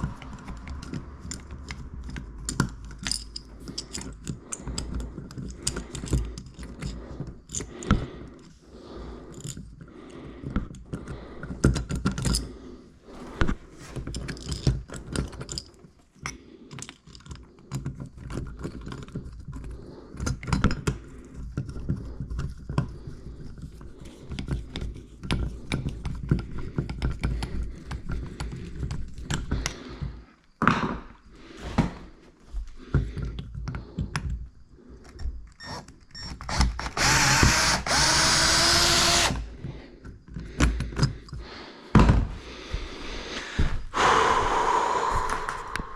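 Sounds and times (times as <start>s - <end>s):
clicks and knocks of tools handled: 0.0s - 8.5s, 13.4s - 22.9s.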